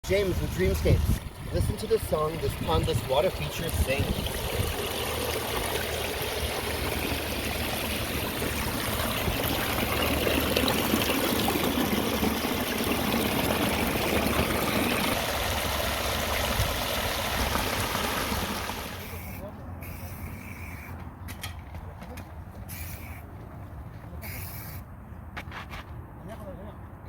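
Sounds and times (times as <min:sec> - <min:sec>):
waterfall splashing over stone: 0:02.4 - 0:19.0.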